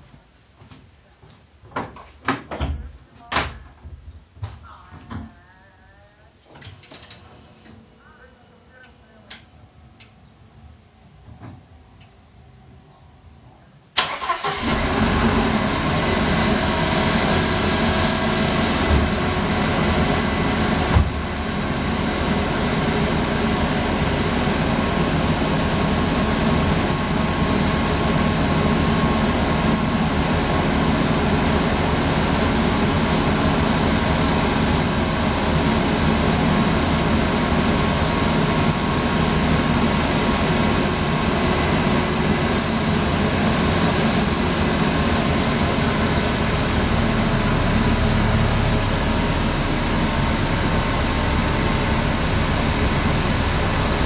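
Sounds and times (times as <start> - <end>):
car engine starting and idling: 14.0 - 54.0.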